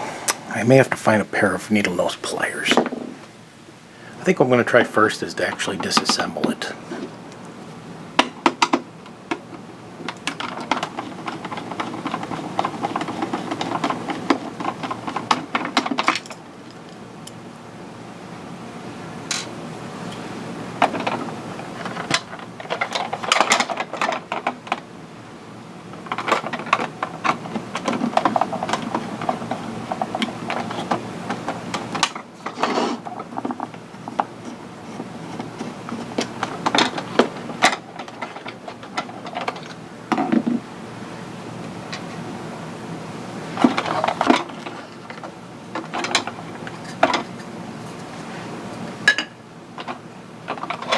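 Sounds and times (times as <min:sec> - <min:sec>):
tools clicking and scraping plastic: 0:10.0 - 0:16.4, 0:20.8 - 0:24.8, 0:25.9 - 0:40.6, 0:43.6 - 0:47.5, 0:49.8 - 0:50.9.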